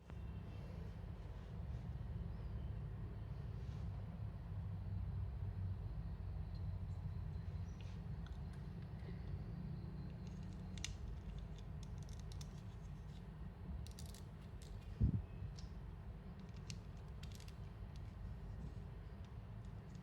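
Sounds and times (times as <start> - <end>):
plastic parts clicking together: 10.2 - 13.2, 13.8 - 14.9, 16.4 - 18.1.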